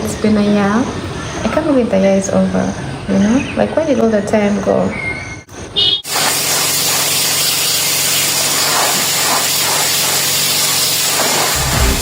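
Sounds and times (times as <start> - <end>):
pressure washer water jet hissing: 6.1 - 12.0
motor humming: 11.6 - 12.0.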